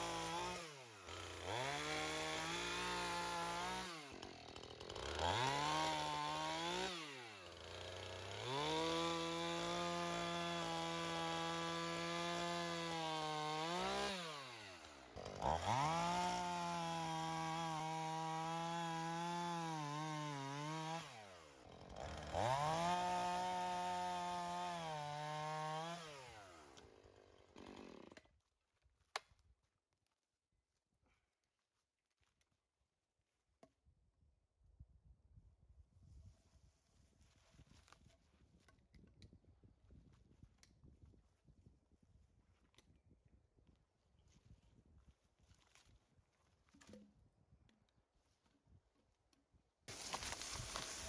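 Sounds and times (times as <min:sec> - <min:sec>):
chainsaw cutting wood: 0:00.0 - 0:28.4, 0:49.9 - 0:51.0.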